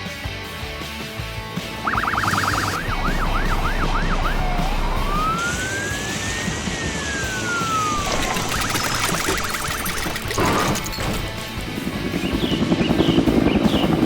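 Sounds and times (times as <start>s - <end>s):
background music: 0.0s - 7.9s
siren yelping and wailing: 1.8s - 10.9s.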